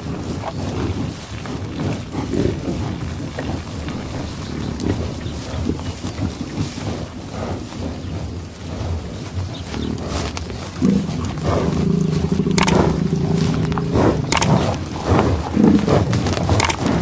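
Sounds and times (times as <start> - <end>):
low rumbling background: 0.0 - 17.0
sharp click: 12.6 - 12.9, 14.3 - 14.8, 16.5 - 16.9.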